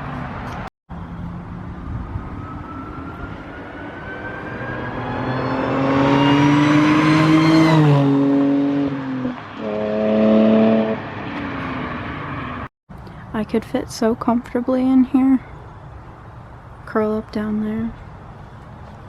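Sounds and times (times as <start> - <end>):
car engine accelerating: 1.0 - 12.7.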